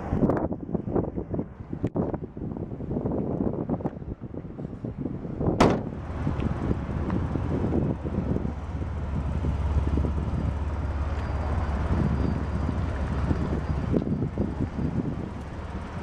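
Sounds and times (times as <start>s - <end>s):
wind rumble on microphone: 0.0s - 16.0s
car door shutting: 5.6s - 6.0s.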